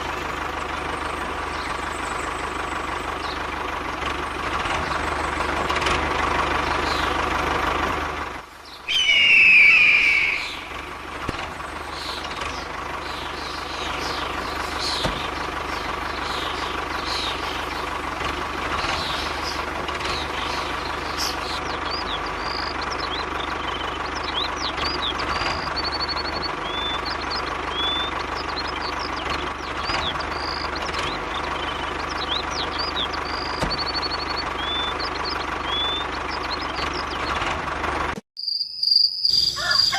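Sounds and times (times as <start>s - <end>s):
birds chirping: 0.0s - 37.5s, 38.4s - 39.9s
short warbling tone: 8.9s - 10.8s.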